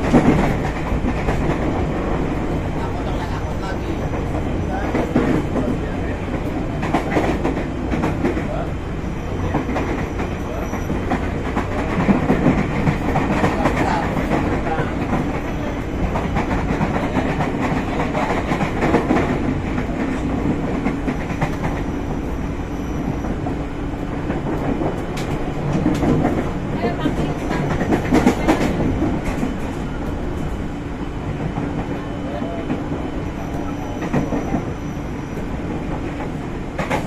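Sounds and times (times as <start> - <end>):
clacks over rail joints: 0.0 - 2.2, 4.1 - 8.8, 9.4 - 22.2, 23.2 - 30.6, 35.9 - 37.0
train wheels rumbling: 0.0 - 37.0.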